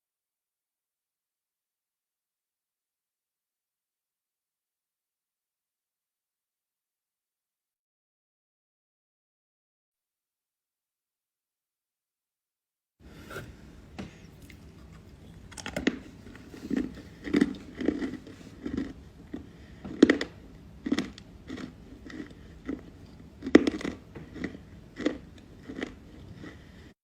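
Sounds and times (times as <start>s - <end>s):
crunchy chewing of clay: 14.2s - 27.0s.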